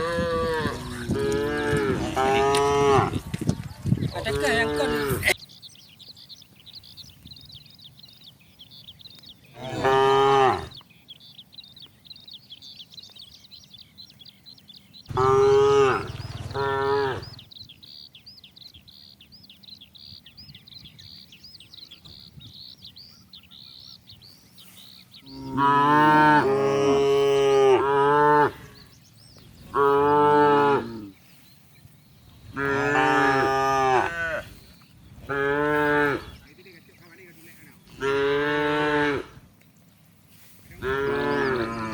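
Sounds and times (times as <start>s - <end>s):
cattle mooing: 0.0s - 3.2s, 9.6s - 10.8s, 15.1s - 17.4s, 25.3s - 28.8s, 29.7s - 31.2s, 32.5s - 34.6s, 35.2s - 36.4s, 37.9s - 39.4s, 40.8s - 41.9s.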